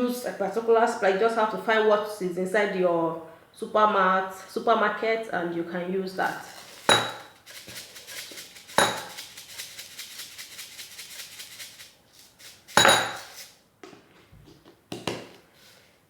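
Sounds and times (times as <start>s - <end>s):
dried spice rattling onto plate: 6.2s - 13.6s
container clinking against dish: 6.4s - 9.3s, 12.7s - 13.4s.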